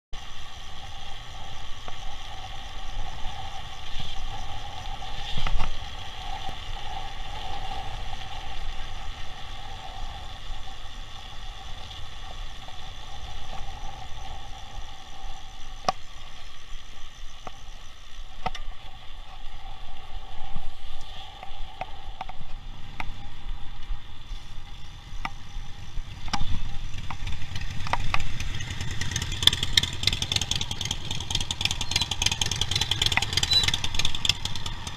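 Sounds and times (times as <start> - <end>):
motor vehicle engine: 0.1 - 20.1, 21.0 - 34.9
traffic: 0.1 - 34.9
wind noise on microphone: 0.4 - 34.9
bike clicks and rattles: 25.1 - 34.9.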